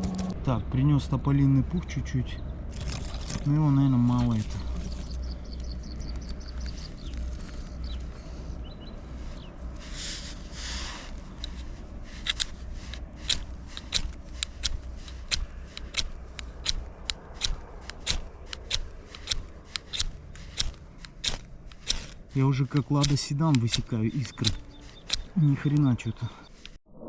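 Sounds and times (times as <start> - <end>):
knife scraping fire steel: 0.0 - 0.4, 9.2 - 25.9.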